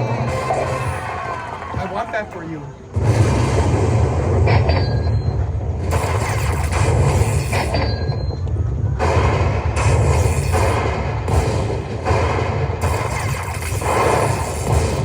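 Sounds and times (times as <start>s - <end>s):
loud low rumble: 2.9s - 12.9s.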